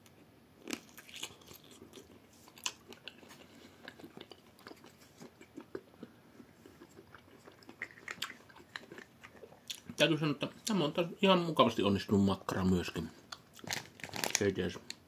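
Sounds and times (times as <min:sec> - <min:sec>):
person chewing sausage: 0:00.1 - 0:10.0, 0:13.2 - 0:14.4
mouth clicks and crunches: 0:00.6 - 0:10.0, 0:13.3 - 0:15.0.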